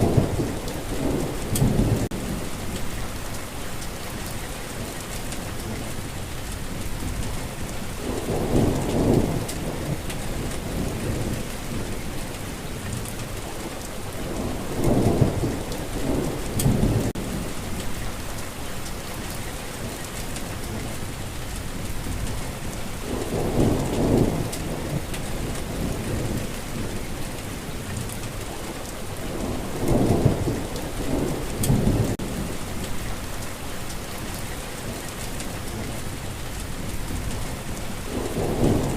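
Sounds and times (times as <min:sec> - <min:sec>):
low thunder rolls: 0:00.0 - 0:03.0, 0:06.8 - 0:12.2, 0:14.1 - 0:18.1, 0:21.9 - 0:28.4, 0:29.1 - 0:33.1, 0:36.8 - 0:38.9
heavy rainfall: 0:00.0 - 0:38.9.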